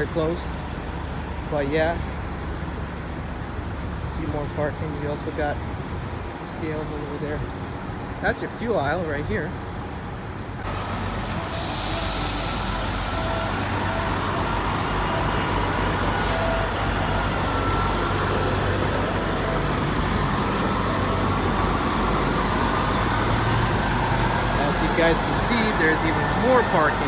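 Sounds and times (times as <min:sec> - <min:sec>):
diesel truck engines running: 0:00.0 - 0:27.0
air hiss: 0:10.7 - 0:27.0.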